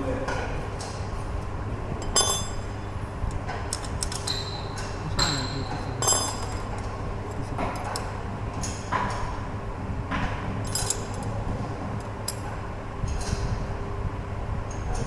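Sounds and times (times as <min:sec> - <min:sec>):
low hum: 0:01.4 - 0:08.6
metal tools clinking: 0:02.0 - 0:02.7, 0:03.7 - 0:08.1, 0:10.6 - 0:11.4.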